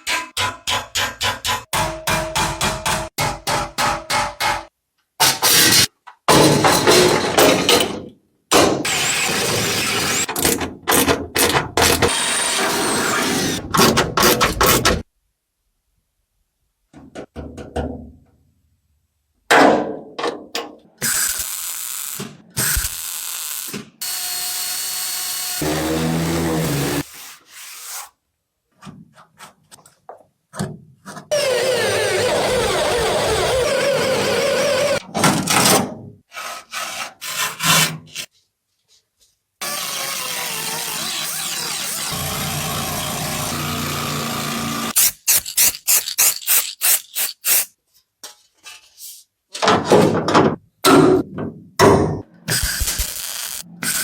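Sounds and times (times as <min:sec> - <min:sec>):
power tools running: 0:24.0 - 0:27.0, 0:39.6 - 0:45.0.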